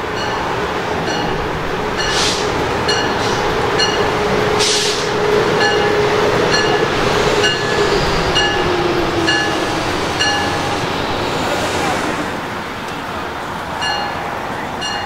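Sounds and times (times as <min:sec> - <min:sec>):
electric train motor whine: 0:01.5 - 0:13.5
air hiss: 0:02.0 - 0:03.6, 0:04.6 - 0:05.2.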